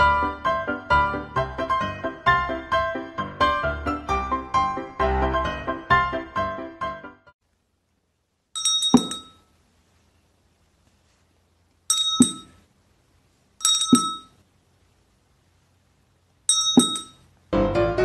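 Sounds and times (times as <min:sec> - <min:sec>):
small metal hand bell ringing: 0:08.6 - 0:09.4, 0:11.9 - 0:12.5, 0:13.6 - 0:14.3, 0:16.5 - 0:17.2.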